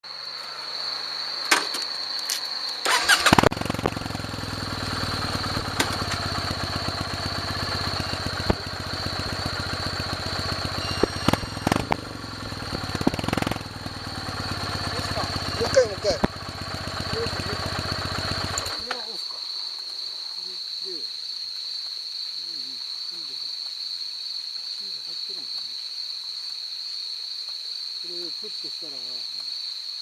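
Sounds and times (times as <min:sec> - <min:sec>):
starter clicks: 0:01.5 - 0:04.0, 0:05.4 - 0:06.5, 0:10.6 - 0:13.8, 0:14.9 - 0:16.5, 0:18.1 - 0:19.0
motorcycle engine cranking: 0:01.5 - 0:19.0
motorcycle engine idling: 0:02.5 - 0:19.0.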